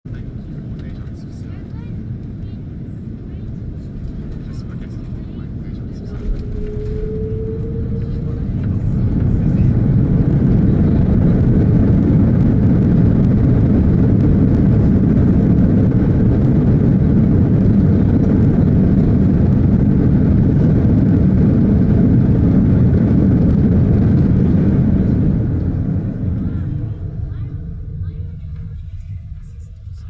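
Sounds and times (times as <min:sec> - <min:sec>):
airplane landing rumble: 0:00.0 - 0:30.0.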